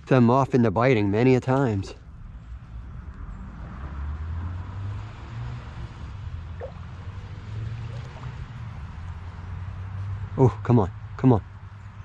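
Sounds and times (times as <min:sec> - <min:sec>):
stream water gurgling: 0:06.5 - 0:09.3.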